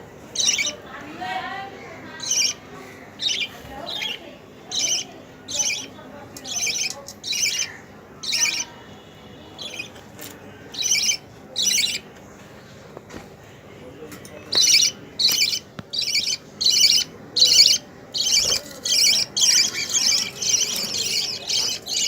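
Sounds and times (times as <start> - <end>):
lovebirds squawking: 0.3 - 0.8, 2.1 - 10.0, 10.7 - 12.1, 14.5 - 22.0.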